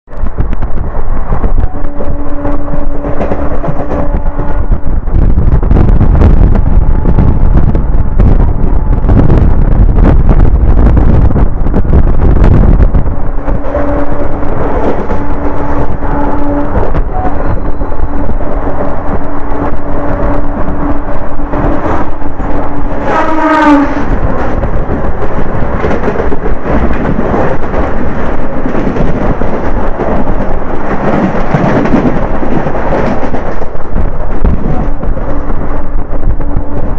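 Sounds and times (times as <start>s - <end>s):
train rumbling and rattling: 0.0s - 36.9s
wind buffeting microphone: 0.0s - 36.9s
train horn blast: 1.6s - 4.9s, 13.5s - 24.4s.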